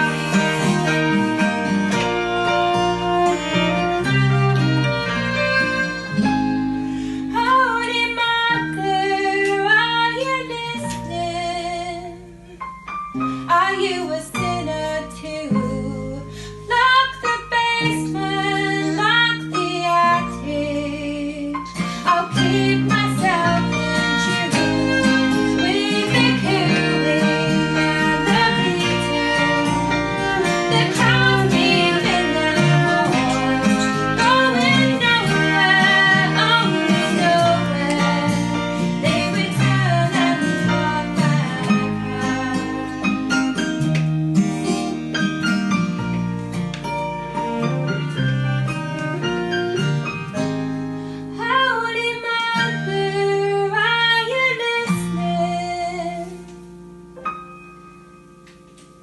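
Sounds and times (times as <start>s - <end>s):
viola melody with vibrato: 0.0s - 12.1s, 13.6s - 43.7s
bass: 0.0s - 59.0s
piano: 0.0s - 59.0s.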